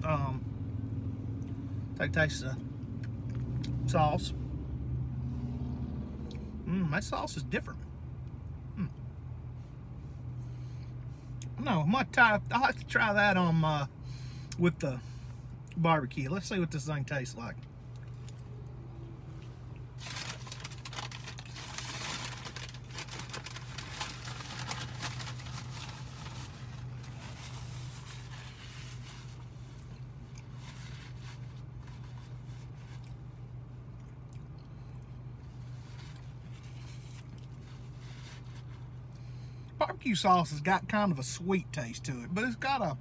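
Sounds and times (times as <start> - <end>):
steady low hum: 0.0 - 43.0
person chewing: 17.9 - 18.7, 33.9 - 37.9
foil wrapper crinkling: 20.0 - 29.4.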